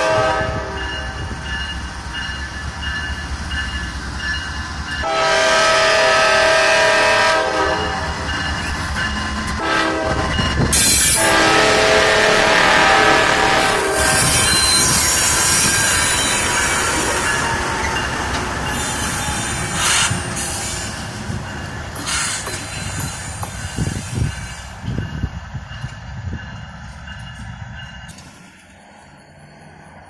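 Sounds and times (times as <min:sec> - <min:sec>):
train horn blast: 0:00.0 - 0:01.2, 0:05.0 - 0:08.2, 0:09.6 - 0:16.6
freight train cars rolling: 0:00.0 - 0:30.0
steel wheels squealing on rail: 0:00.0 - 0:30.0.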